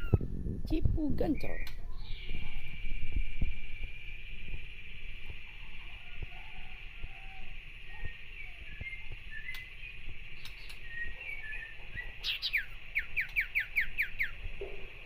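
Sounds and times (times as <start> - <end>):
songbird whistling and chattering: 1.2 - 2.7, 5.7 - 14.4.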